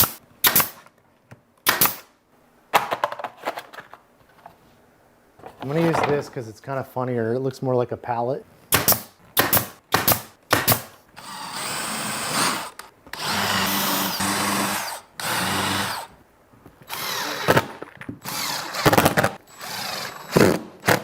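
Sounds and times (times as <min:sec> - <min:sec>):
power drill driving screws: 0:11.2 - 0:16.1, 0:16.9 - 0:21.0.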